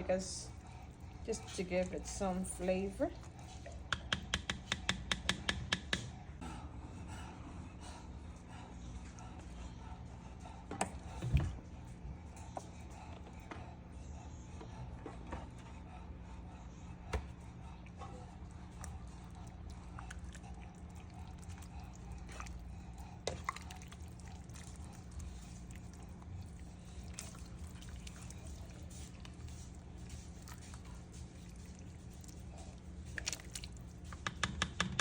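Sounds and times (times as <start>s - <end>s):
dogs lapping and eating: 0.0s - 35.0s.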